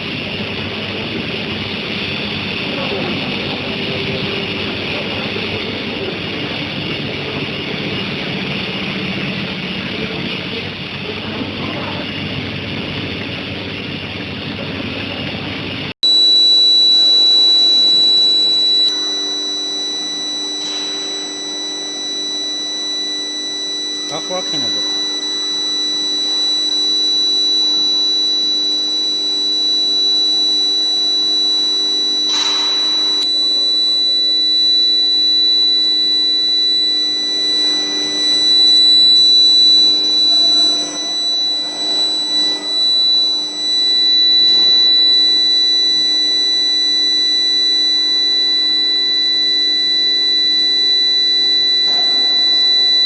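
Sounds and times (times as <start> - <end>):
high-pitched electrical whine: 0.0 - 53.0
induction furnace running: 0.0 - 53.0
faint high steady tones: 16.0 - 53.0
low steady hum: 16.0 - 53.0.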